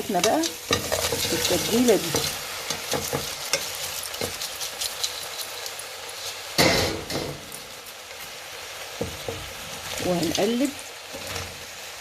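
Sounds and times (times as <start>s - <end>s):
food sizzling in a frying pan: 0.0s - 12.0s
utensil clicking on pan: 0.1s - 5.8s.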